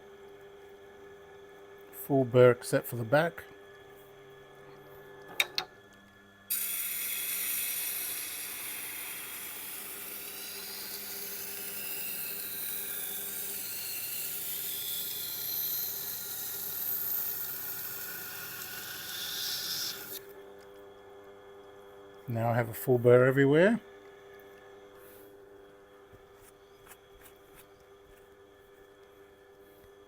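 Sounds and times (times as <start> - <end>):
knife grinding scraping hiss: 6.5 - 20.2
grinder motor hum: 6.5 - 20.5.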